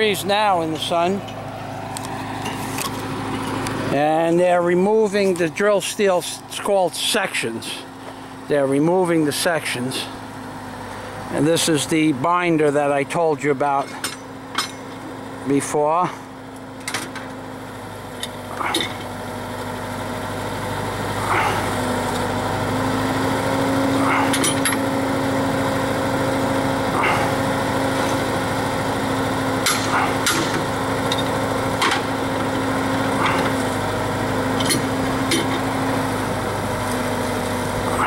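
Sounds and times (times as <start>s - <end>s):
drill rig engine running: 0.0s - 38.0s
sharp metal clanks: 24.0s - 24.9s, 29.6s - 32.0s.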